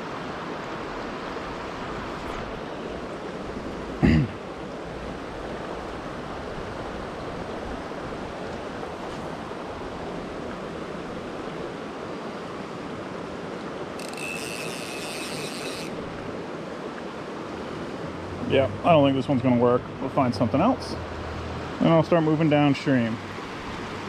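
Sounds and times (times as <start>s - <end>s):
rushing mountain creek: 0.0s - 24.0s
fly reel ratchet buzzing: 14.0s - 16.2s.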